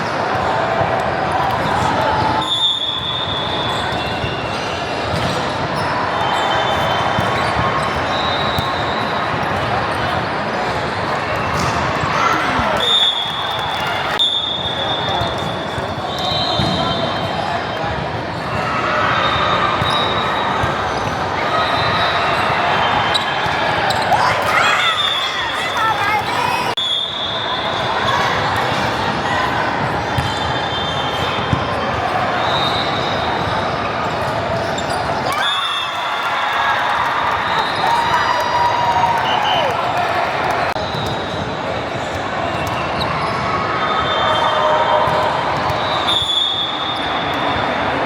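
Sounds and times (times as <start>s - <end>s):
hubbub of people: 0.0s - 48.0s
shoe squeaks: 30.2s - 33.5s, 34.6s - 35.3s.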